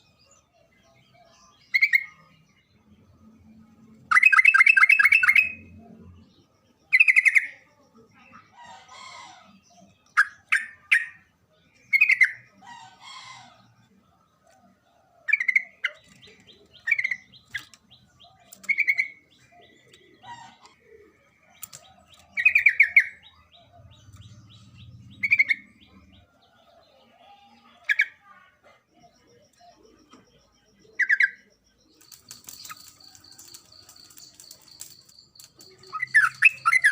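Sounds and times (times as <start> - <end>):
faint bird chirps: 0.0 - 36.9
bird singing bubbly phrases: 28.8 - 36.9.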